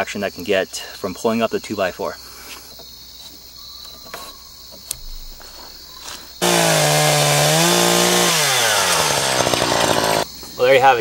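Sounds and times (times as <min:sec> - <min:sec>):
crickets chirping: 0:00.0 - 0:06.5, 0:10.2 - 0:11.0
chainsaw cutting a log: 0:06.4 - 0:10.2.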